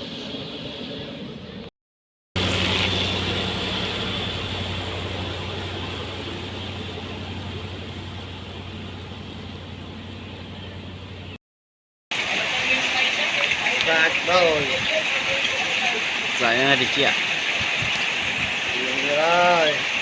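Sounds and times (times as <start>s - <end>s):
construction machine engine humming: 2.4s - 11.4s.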